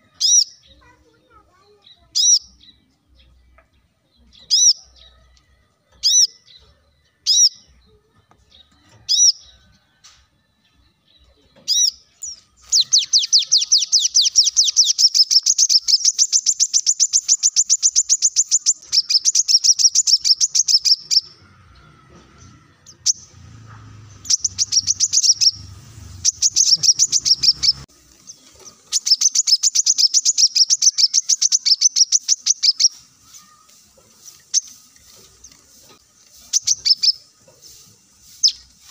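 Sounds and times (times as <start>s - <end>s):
bird chirps: 0.0s - 1.0s, 1.7s - 9.6s, 11.1s - 38.9s
bird rapid high trills: 12.6s - 21.4s, 24.2s - 27.9s, 28.8s - 34.9s, 36.4s - 38.9s.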